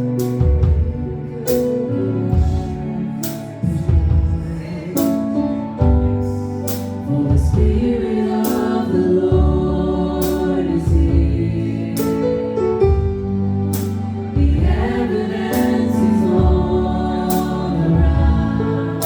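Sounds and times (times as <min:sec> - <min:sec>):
band with strong bass: 0:00.0 - 0:19.0
group singing gospel music: 0:00.0 - 0:19.0.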